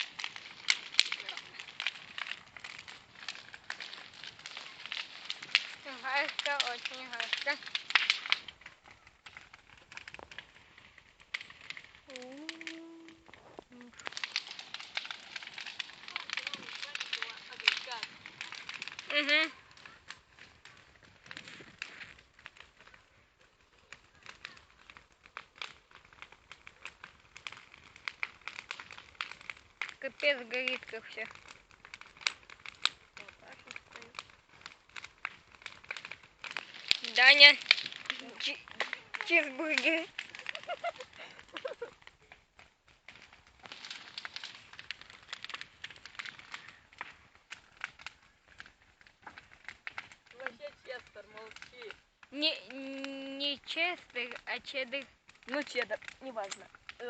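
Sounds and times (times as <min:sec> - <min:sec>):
bonfire crackling and popping: 0:00.0 - 0:57.0.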